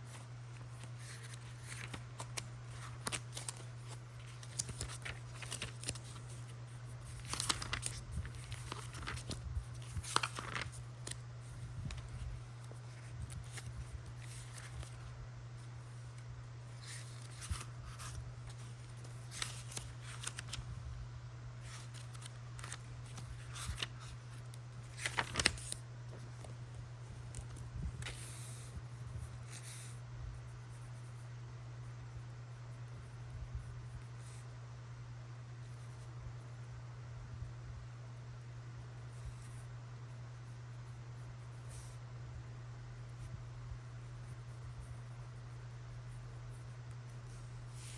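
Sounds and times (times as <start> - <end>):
paper rustling: 0.0 - 15.1, 15.9 - 20.8, 21.6 - 28.8.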